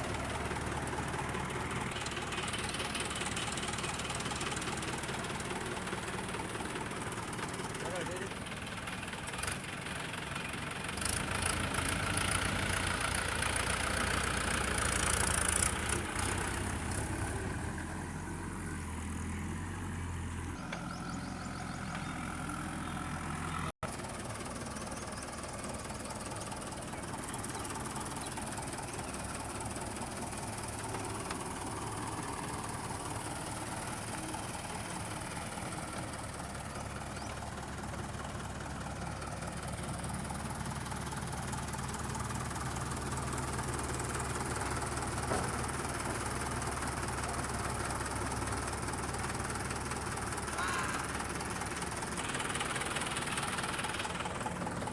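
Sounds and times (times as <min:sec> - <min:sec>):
heavy diesel machinery running: 0:00.0 - 0:54.9.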